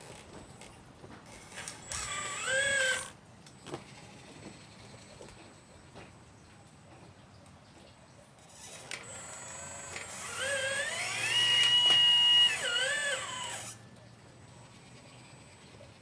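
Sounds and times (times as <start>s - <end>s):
electric motor whining: 1.3s - 3.2s, 8.5s - 13.8s.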